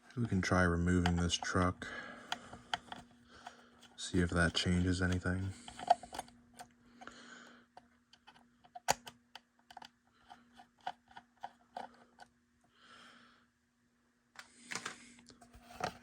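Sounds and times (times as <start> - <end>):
faint steady hum: 0.0 - 16.0
plastic clicks and taps: 2.2 - 6.7, 7.8 - 9.9.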